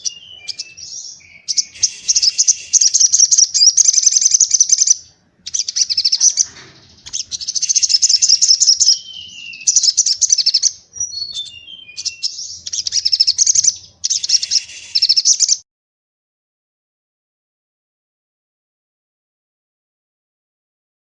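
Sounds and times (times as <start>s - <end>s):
songbird trilling: 0.0s - 15.6s
whistled bird notes: 0.0s - 15.6s.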